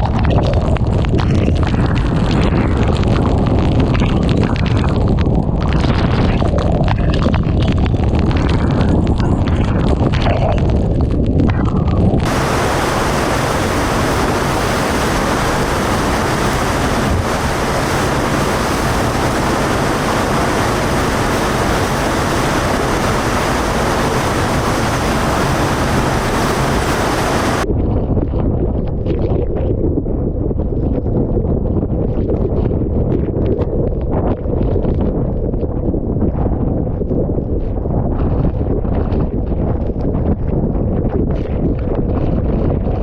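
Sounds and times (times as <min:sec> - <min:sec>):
strong wind rushing: 0:00.0 - 0:43.0
wind buffeting microphone: 0:00.0 - 0:43.0
torrential rain: 0:12.2 - 0:27.6.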